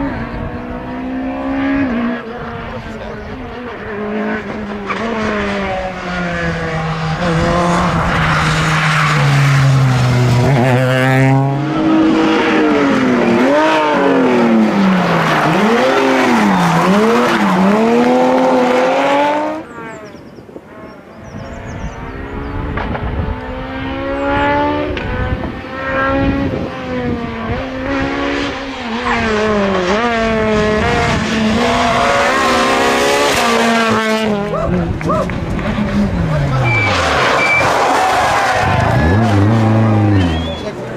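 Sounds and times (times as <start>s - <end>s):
rally car accelerating hard: 0.0s - 40.9s
rally car engine revving: 0.0s - 40.9s.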